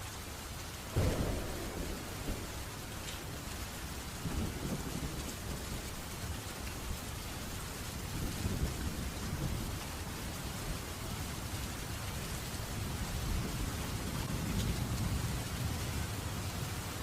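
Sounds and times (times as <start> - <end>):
heavy rain: 0.0 - 17.0
rolling thunder: 0.9 - 6.0.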